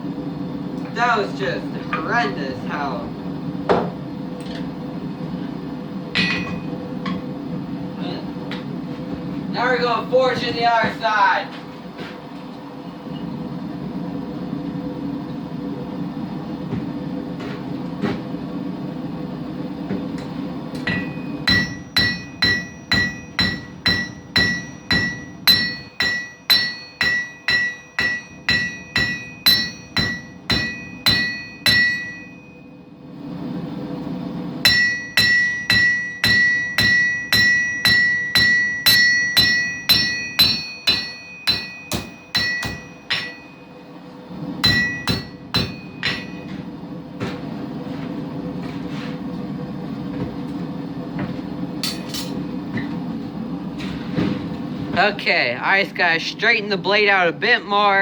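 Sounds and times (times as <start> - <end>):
hammer striking anvil with ringing: 6.2 - 7.2, 20.8 - 32.7, 34.6 - 43.7, 44.6 - 46.6, 51.8 - 52.4.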